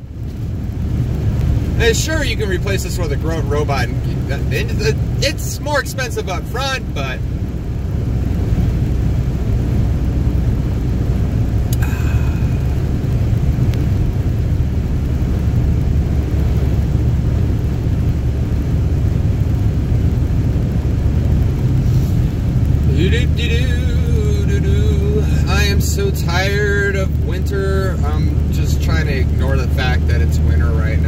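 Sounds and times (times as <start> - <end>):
car engine and road noise: 0.0 - 31.0.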